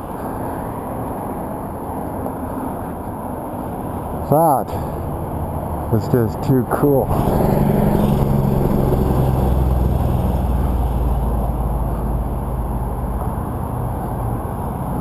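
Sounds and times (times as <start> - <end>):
vehicle engine running: 7.0 - 15.0.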